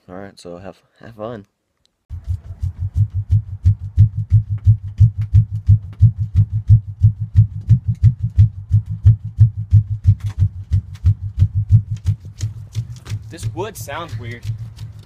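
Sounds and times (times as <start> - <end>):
pickup engine throbbing: 2.1 - 15.0.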